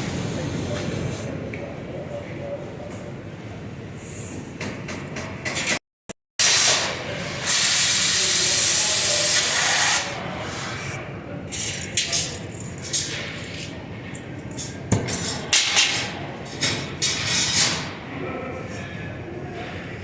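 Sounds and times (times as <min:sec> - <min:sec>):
workshop noise: 0:00.0 - 0:05.8, 0:06.4 - 0:19.6
loud steady hiss: 0:06.4 - 0:10.8.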